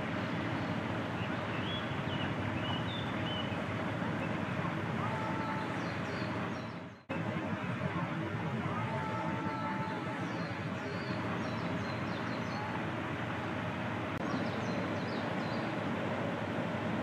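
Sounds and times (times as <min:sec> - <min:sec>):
small birds chirping: 0:00.0 - 0:07.1, 0:09.0 - 0:12.8, 0:14.2 - 0:15.8
outdoor background hiss: 0:00.0 - 0:17.0.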